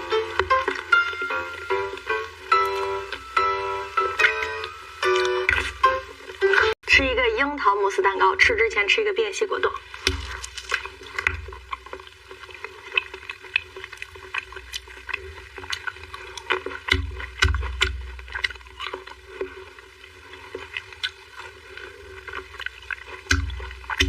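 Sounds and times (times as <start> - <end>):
wet chewing mouth sounds: 9.8 - 24.0.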